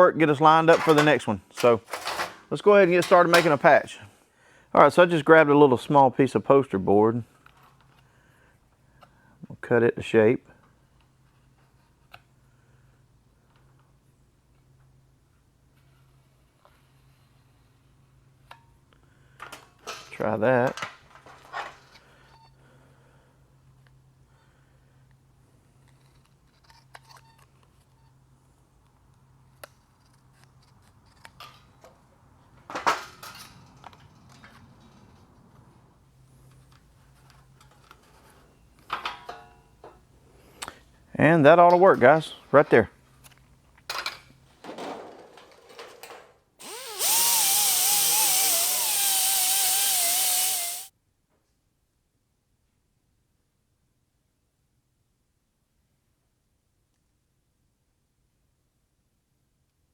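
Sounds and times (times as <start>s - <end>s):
power tool whine: 46.6s - 50.9s.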